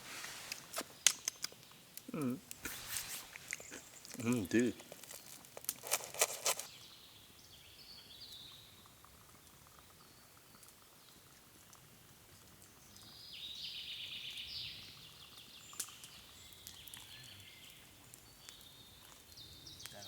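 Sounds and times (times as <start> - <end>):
songbird singing trilled phrases: 13.1 - 20.0.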